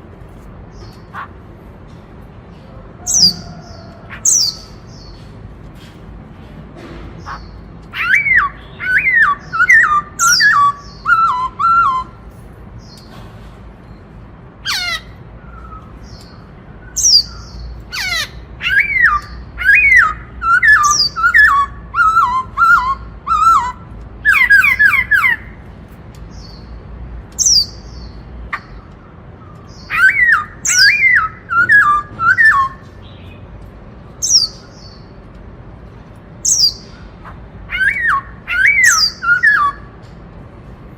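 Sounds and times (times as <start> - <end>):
bird singing whistled notes: 8.0 - 12.2, 18.6 - 25.4, 29.6 - 33.4, 37.7 - 39.9.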